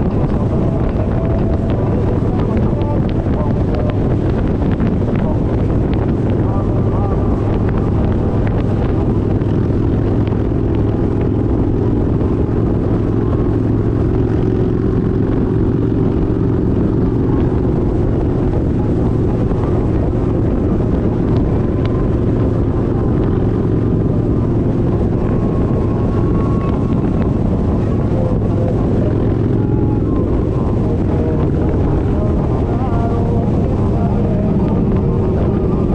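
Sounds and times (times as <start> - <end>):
motorcycle engine cruising steadily: 0.0 - 35.9.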